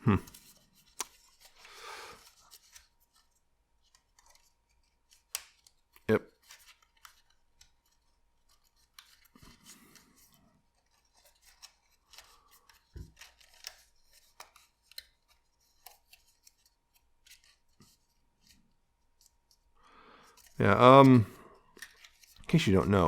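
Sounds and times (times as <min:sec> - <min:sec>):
card stock rustling and folding: 0:00.1 - 0:23.0.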